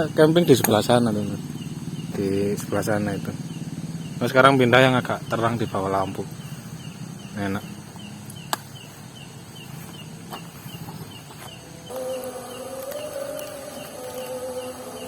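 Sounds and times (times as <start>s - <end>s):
night insect chirping: 0.0s - 15.0s
distant wavering pitched tone: 11.8s - 15.0s.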